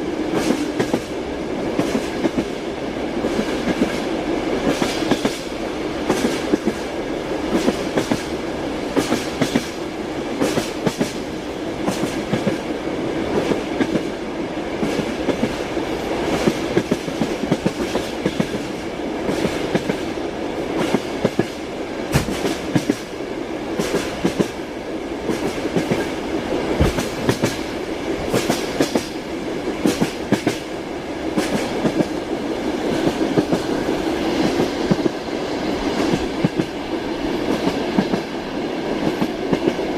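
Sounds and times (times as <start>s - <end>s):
train wheels clattering over rail joints: 8.9s - 9.8s, 16.3s - 20.0s, 20.8s - 23.1s, 26.8s - 27.7s, 29.8s - 30.7s.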